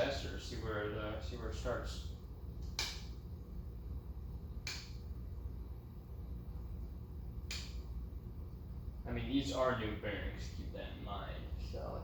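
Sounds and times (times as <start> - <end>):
low steady hum: 0.0 - 12.0
switch clicks: 2.6 - 3.2, 4.6 - 5.0, 7.4 - 7.8.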